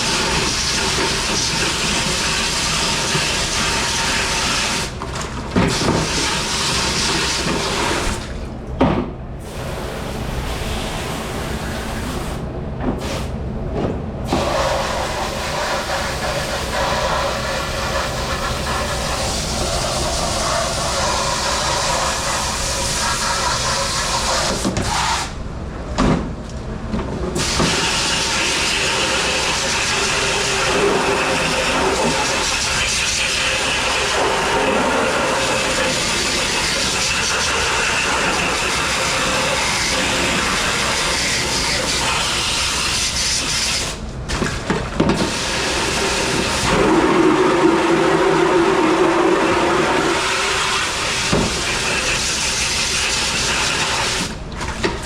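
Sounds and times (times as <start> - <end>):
water spraying hiss: 14.3 - 25.3, 27.4 - 44.0, 45.2 - 54.2.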